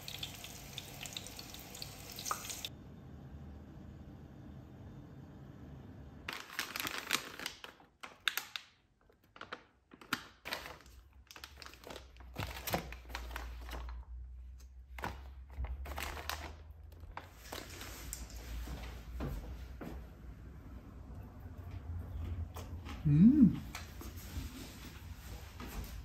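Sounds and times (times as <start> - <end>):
plastic packaging crinkling: 6.3 - 14.2, 14.9 - 18.6.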